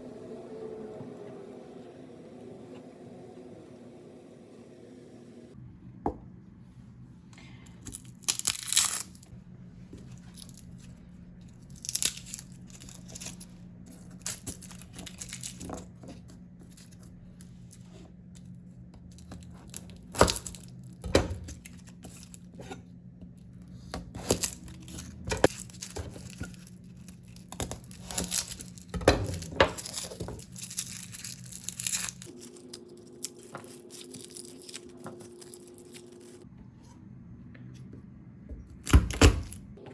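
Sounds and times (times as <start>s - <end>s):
steady low hum: 0.0s - 39.9s
tearing and crinkling noises: 7.8s - 9.3s, 24.2s - 36.5s.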